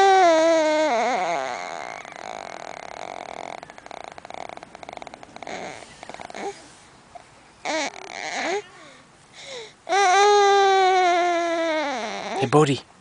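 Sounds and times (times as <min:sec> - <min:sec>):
baby high squeal: 0:00.0 - 0:04.6, 0:09.9 - 0:12.5
faint squeak: 0:00.6 - 0:06.9
baby raspy throat noises: 0:01.1 - 0:09.0.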